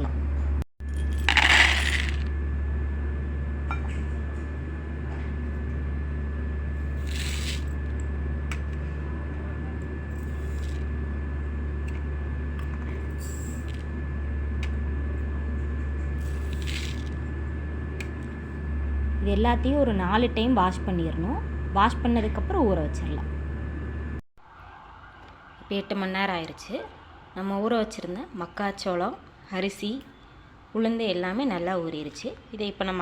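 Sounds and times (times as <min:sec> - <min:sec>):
steady low hum: 0:00.0 - 0:24.2
grains rattling into a bowl: 0:01.0 - 0:02.3, 0:07.0 - 0:07.7, 0:16.4 - 0:17.1.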